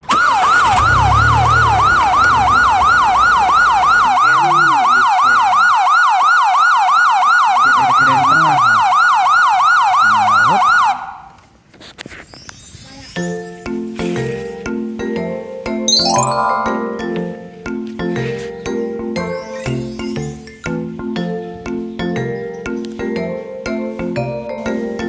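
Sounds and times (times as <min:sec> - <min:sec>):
emergency siren yelping: 0:00.0 - 0:11.4.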